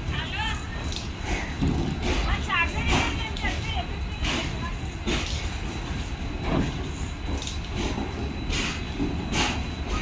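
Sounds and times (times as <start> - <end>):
train rolling rumble: 0.0 - 10.0
train wheels clacking over rail joints: 0.4 - 10.0.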